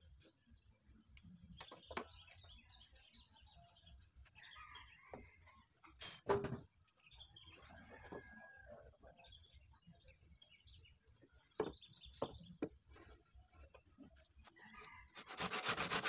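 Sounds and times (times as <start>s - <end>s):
timber knocking on workbench: 6.3s - 6.7s, 11.6s - 12.8s.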